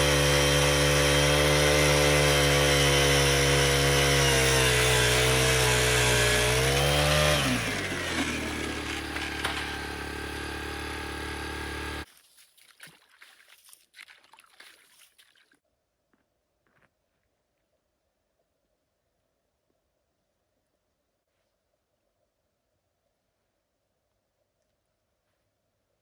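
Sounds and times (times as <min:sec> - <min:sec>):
ice auger engine drilling: 0:00.0 - 0:12.1.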